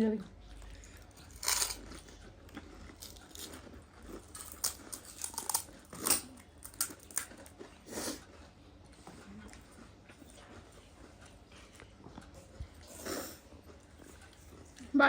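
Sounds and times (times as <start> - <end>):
crisp shells crunching when chewed: 0.5 - 8.5.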